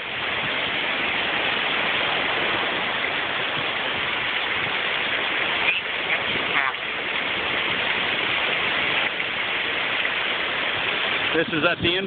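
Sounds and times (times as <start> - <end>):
small waterfall splashing: 0.0 - 12.0.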